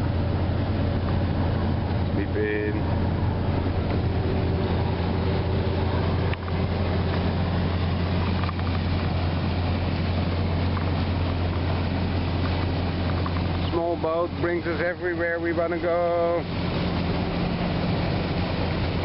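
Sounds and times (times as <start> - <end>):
boat engine drone: 0.0 - 19.0
water: 0.0 - 19.0
wind: 0.0 - 19.0.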